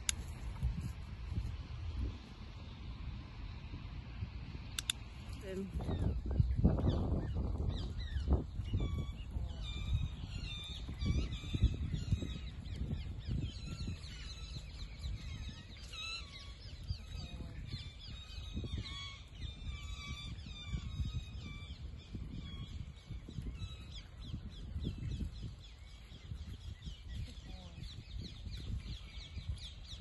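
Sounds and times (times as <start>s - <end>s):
wind rumbling on microphone: 0.0s - 30.0s
flock of birds calling: 5.4s - 25.0s.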